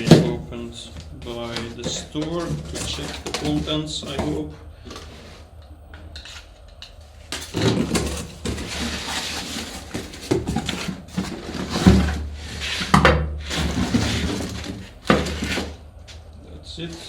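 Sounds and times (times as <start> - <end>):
packaging rustling: 0.0 - 5.1, 6.2 - 12.9
parts being handled: 0.0 - 17.0.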